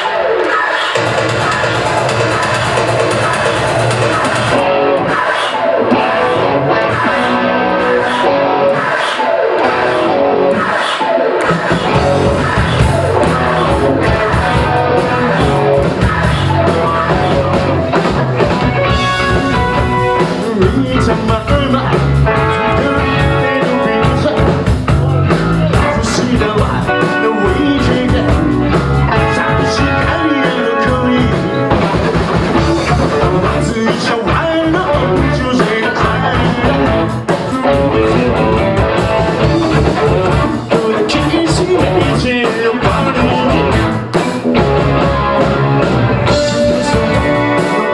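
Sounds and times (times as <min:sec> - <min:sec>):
rock band playing live: 0:00.0 - 0:47.9
melodic lead line: 0:11.4 - 0:47.9.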